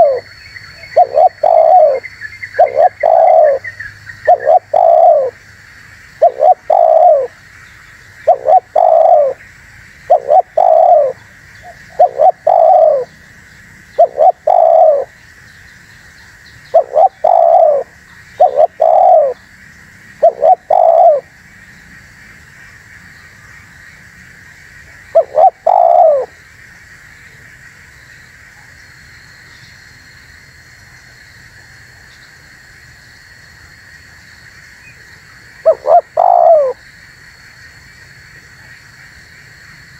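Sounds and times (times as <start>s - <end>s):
dove cooing: 0.0s - 5.4s, 6.2s - 7.4s, 8.2s - 9.4s, 10.1s - 13.1s, 14.0s - 15.1s, 16.7s - 19.4s, 20.2s - 21.3s, 25.1s - 26.4s, 35.6s - 36.8s.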